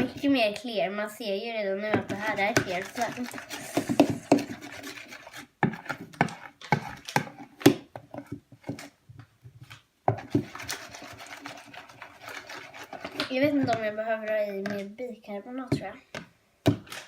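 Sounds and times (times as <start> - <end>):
utensil scraping and knocking bowl: 1.9 - 8.9, 10.1 - 14.8.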